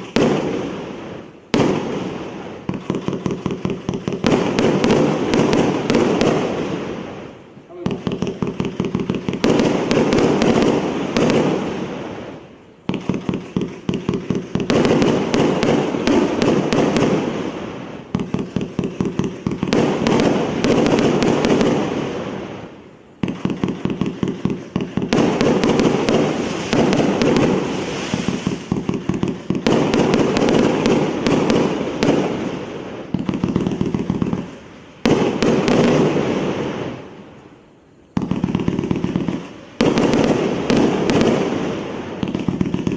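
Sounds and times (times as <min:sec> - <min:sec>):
fireworks bursting and crackling: 0:00.0 - 0:42.9
firework launch thumps: 0:23.2 - 0:32.3.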